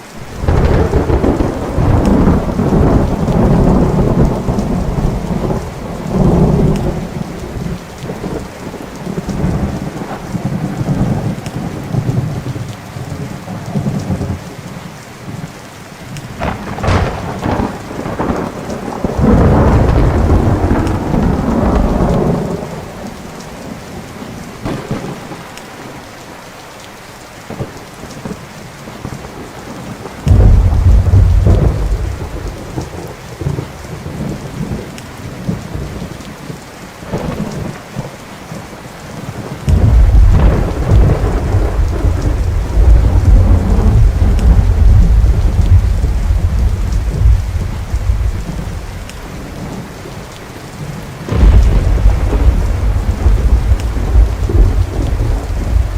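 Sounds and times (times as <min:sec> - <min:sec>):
steady rain: 0:00.0 - 0:55.9
thunder rumbling: 0:00.1 - 0:14.6, 0:16.2 - 0:26.1, 0:29.0 - 0:55.9
sharp thunder crack: 0:00.2 - 0:08.5, 0:16.4 - 0:23.0, 0:24.6 - 0:25.6, 0:30.3 - 0:33.6, 0:39.7 - 0:48.9, 0:51.3 - 0:55.9.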